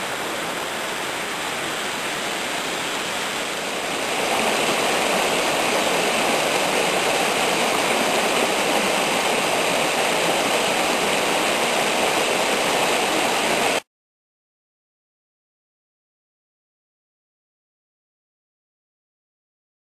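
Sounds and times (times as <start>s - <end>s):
waterfall roar: 0.0s - 13.8s.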